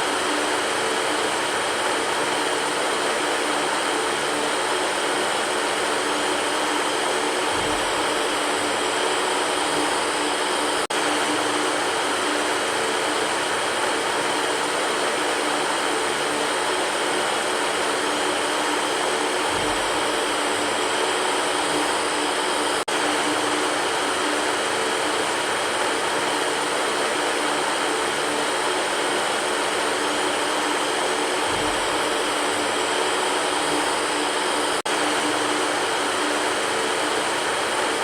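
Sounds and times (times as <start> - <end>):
electric fan whooshing: 0.0 - 38.0.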